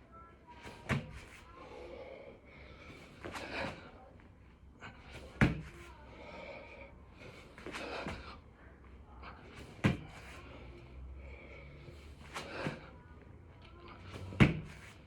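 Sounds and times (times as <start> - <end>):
sharp thuds on the floor: 0.8 - 1.2, 5.4 - 5.7, 9.8 - 10.2, 14.2 - 14.9.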